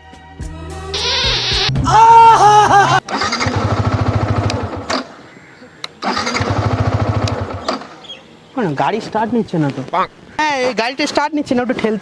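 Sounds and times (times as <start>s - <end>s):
motorcycle starter cranking: 2.9s - 8.3s.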